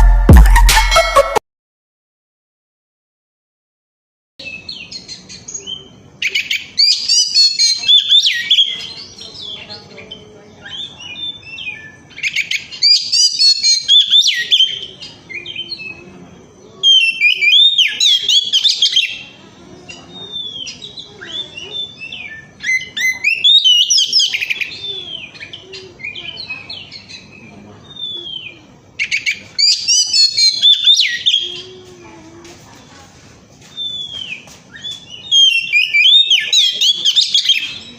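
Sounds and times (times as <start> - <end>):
bird singing whistles and trills: 4.4 - 9.7, 10.6 - 16.1, 16.8 - 19.3, 19.9 - 31.7, 33.7 - 37.9.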